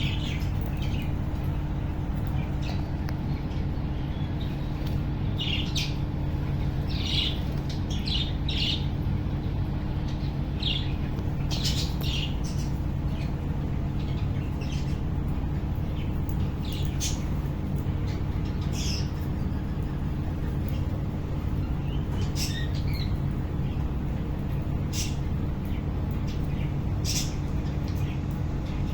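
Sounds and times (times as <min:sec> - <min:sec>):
steady low hum: 0:00.0 - 0:28.9
budgerigars chirping and squawking: 0:10.6 - 0:13.3.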